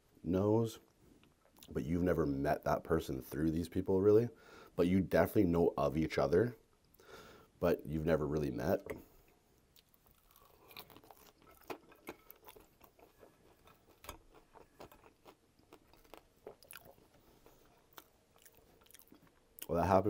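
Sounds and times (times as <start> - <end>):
chewing fries: 9.2 - 19.8.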